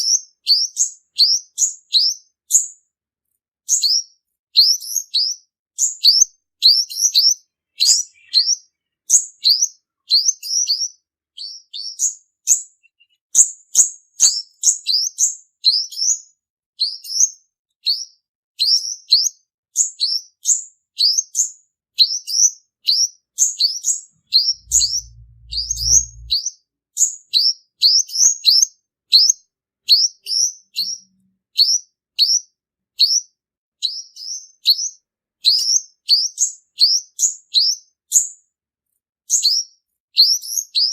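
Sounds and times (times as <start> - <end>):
bird singing high thin chirps: 3.7 - 16.2, 21.0 - 26.4
brief low rumble: 24.3 - 26.4.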